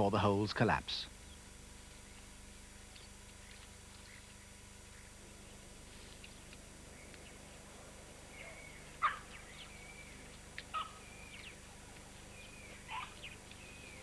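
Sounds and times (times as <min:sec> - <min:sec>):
birds calling: 0:00.0 - 0:14.0.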